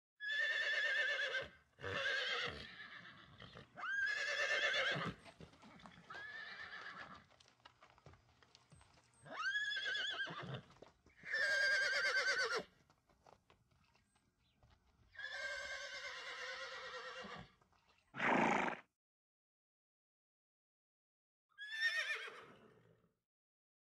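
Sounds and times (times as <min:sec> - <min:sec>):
horses whinnying: 0:00.2 - 0:07.3, 0:09.2 - 0:12.7, 0:15.1 - 0:17.5, 0:18.2 - 0:18.8, 0:21.6 - 0:22.8.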